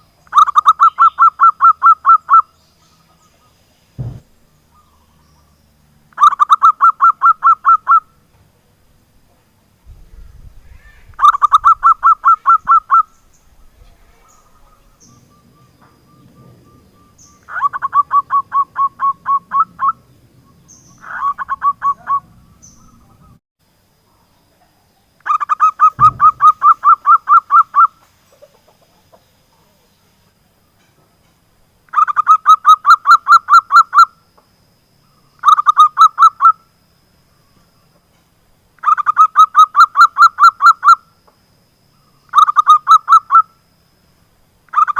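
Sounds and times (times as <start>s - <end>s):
dull thump: 4.0s - 4.4s, 25.9s - 26.8s
dove staccato cooing: 14.3s - 20.1s, 21.0s - 23.4s, 25.3s - 29.8s.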